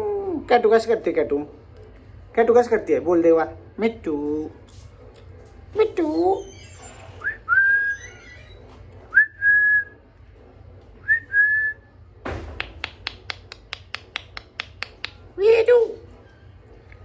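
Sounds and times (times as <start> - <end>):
parrot whistling: 7.2 - 8.3.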